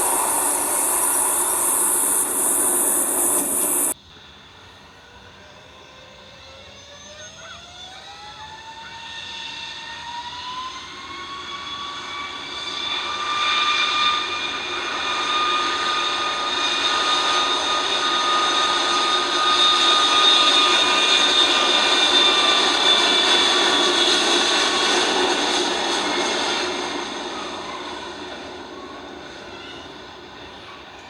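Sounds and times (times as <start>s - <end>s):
jet engines whining: 0.0s - 4.0s.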